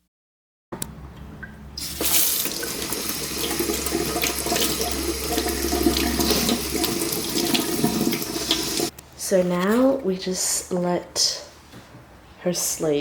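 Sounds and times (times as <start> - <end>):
tap water running into sink: 1.8 - 8.9.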